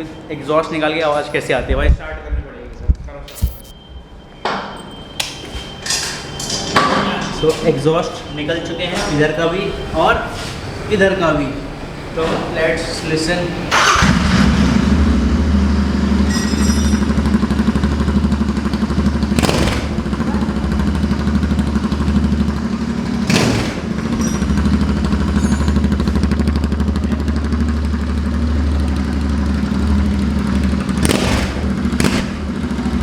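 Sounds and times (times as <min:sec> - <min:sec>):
sharp exhaust cracks: 0:10.5 - 0:33.0
motorcycle engine idling: 0:15.0 - 0:33.0.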